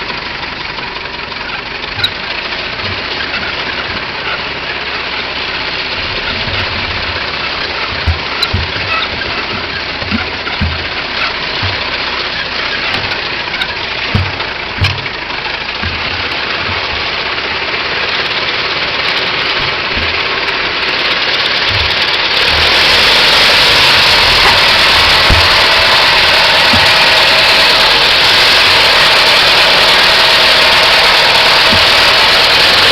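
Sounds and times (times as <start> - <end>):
old car engine running: 0.0 - 32.9
irregular low thumps: 5.9 - 17.7, 19.5 - 27.5.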